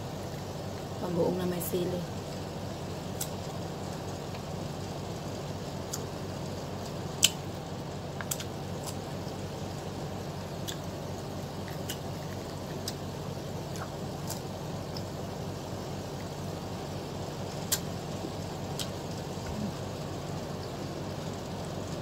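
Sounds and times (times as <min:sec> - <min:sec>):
low background hum: 0:00.0 - 0:22.0
wet mouth smacks eating: 0:08.2 - 0:09.0.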